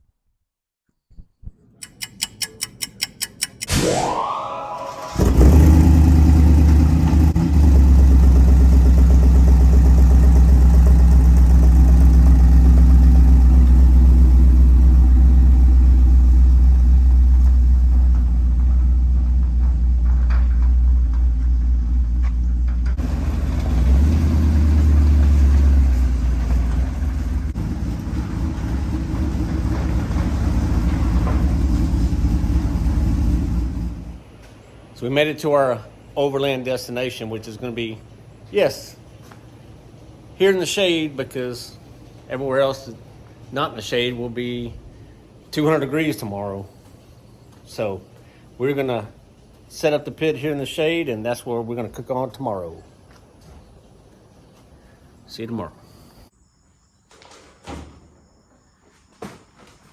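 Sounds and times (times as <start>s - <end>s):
short rising sweep: 3.7s - 6.8s
vehicle engine rumbling: 4.8s - 35.1s, 37.4s - 56.3s.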